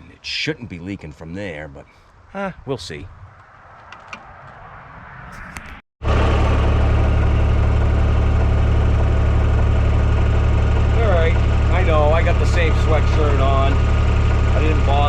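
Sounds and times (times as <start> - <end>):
tractor diesel engine idling: 6.0 - 15.0.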